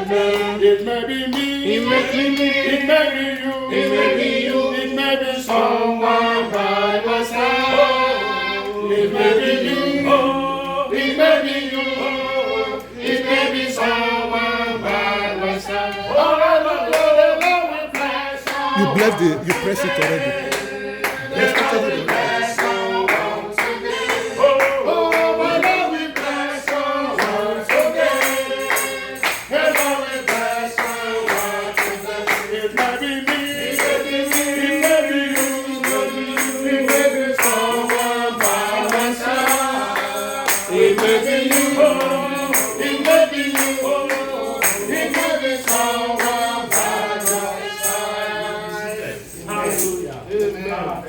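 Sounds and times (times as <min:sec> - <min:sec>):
group singing worship song: 0:00.0 - 0:51.0
tambourine beat: 0:18.7 - 0:20.4, 0:21.4 - 0:22.8, 0:25.2 - 0:50.2.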